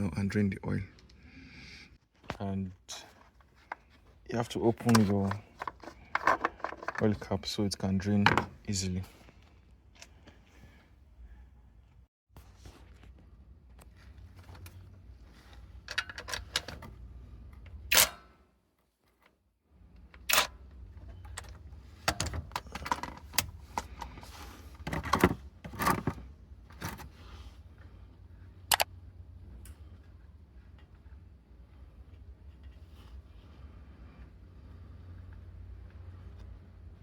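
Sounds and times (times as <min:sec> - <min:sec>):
tools clicking and knocking: 0:04.8 - 0:07.1.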